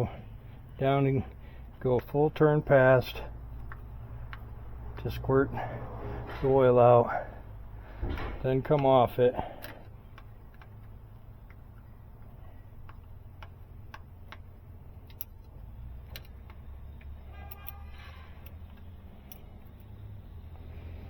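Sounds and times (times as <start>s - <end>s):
low steady hum: 0.0s - 21.0s
metallic clicks of hand tools: 9.6s - 20.0s.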